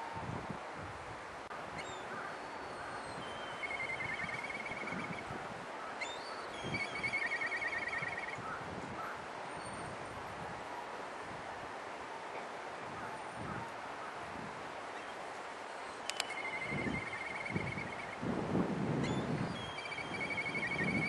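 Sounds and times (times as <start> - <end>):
kite whistling trill call: 3.1 - 5.3, 6.2 - 8.4, 16.1 - 18.2, 19.0 - 21.0.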